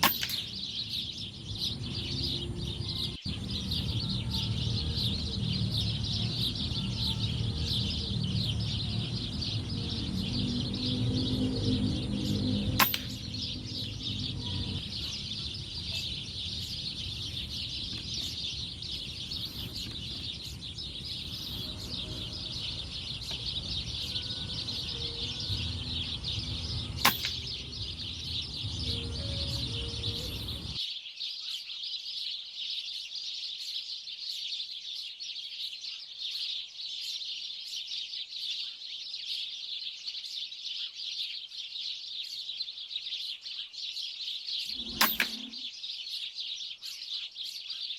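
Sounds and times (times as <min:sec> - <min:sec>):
flock of birds chirping: 0:00.0 - 0:47.9
low background rumble: 0:02.6 - 0:30.8.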